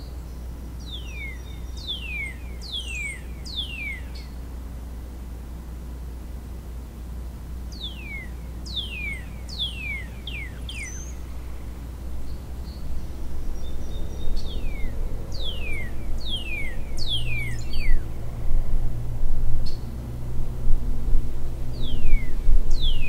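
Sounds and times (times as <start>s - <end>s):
steady low hum: 0.0s - 23.0s
songbird whistling descending notes: 0.9s - 4.3s, 7.7s - 11.3s, 13.6s - 18.1s.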